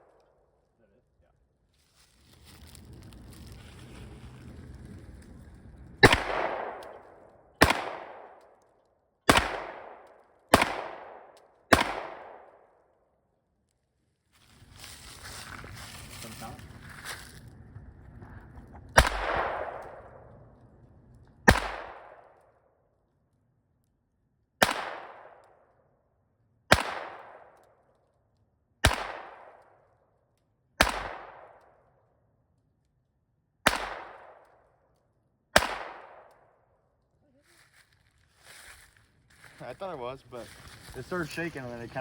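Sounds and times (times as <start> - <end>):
gunshots with echo: 6.0 - 7.0, 7.6 - 8.4, 9.3 - 12.6, 19.0 - 20.1, 21.5 - 22.2, 24.6 - 25.4, 26.7 - 27.5, 28.8 - 29.6, 30.8 - 31.6, 33.7 - 34.4, 35.6 - 36.3.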